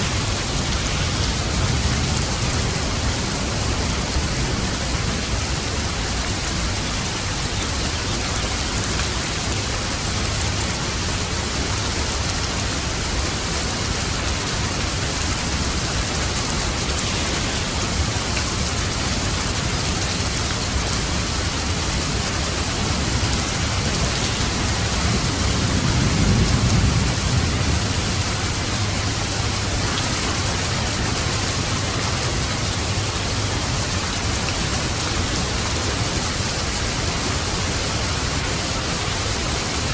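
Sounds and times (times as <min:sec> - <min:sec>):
dense rainfall: 0:00.0 - 0:39.9.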